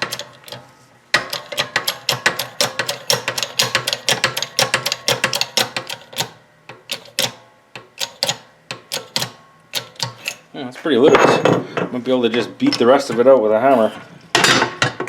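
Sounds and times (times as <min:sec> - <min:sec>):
press clicking metallically: 0:00.0 - 0:10.5.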